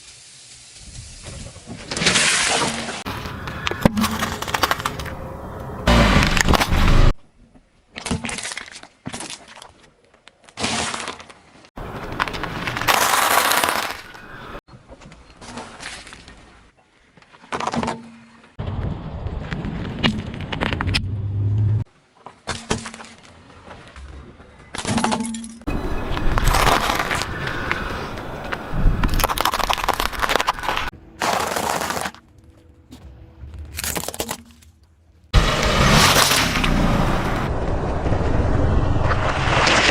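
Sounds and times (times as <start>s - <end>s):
tyres crushing crunchy objects: 2.0s - 5.3s, 5.9s - 7.2s, 7.9s - 14.6s, 26.1s - 37.5s.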